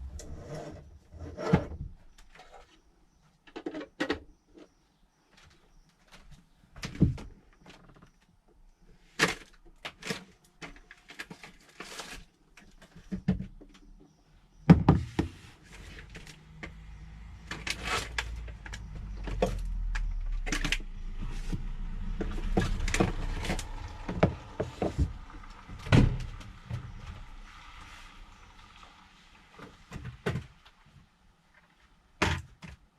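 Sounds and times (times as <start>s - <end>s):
knocks and clunks: 14.6s - 27.6s
low steady rumble: 16.0s - 29.1s.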